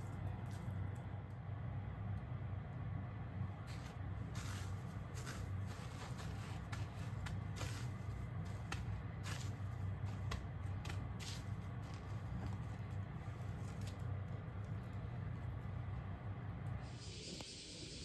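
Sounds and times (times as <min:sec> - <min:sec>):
rustling: 0:03.7 - 0:15.5.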